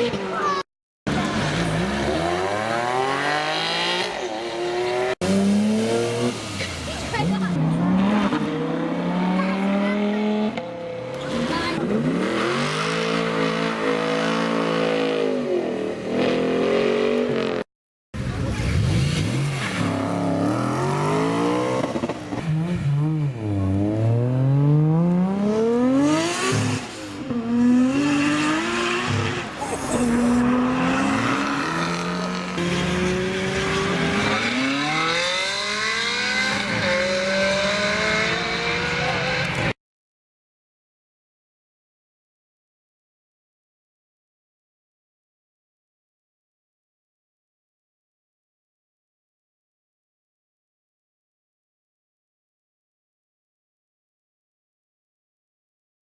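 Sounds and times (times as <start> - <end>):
sports car engines accelerating: 18.2 - 39.8.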